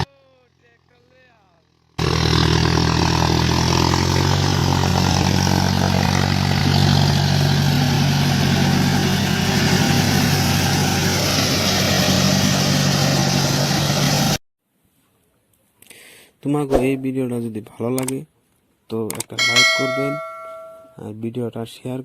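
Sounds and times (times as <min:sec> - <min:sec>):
tractor diesel engine running: 0:00.0 - 0:14.4.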